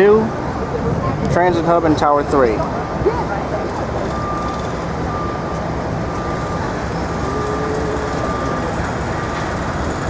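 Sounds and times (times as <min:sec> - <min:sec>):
traffic and machinery rumble: 0:00.0 - 0:10.0
thin high tone: 0:06.2 - 0:09.4.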